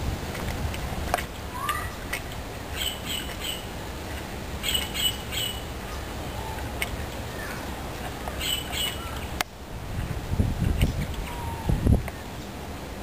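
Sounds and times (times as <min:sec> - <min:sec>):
wind rumble on microphone: 0:00.0 - 0:02.7, 0:09.0 - 0:13.0
birds squawking and chirping: 0:01.5 - 0:02.1, 0:02.7 - 0:03.7, 0:04.6 - 0:09.4.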